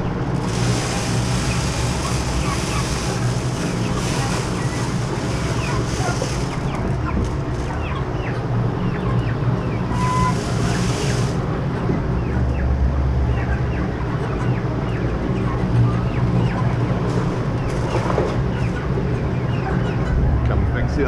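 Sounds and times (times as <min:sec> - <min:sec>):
chicks peeping: 0:00.0 - 0:20.2
hiss: 0:10.0 - 0:11.4
low hum: 0:20.0 - 0:21.0.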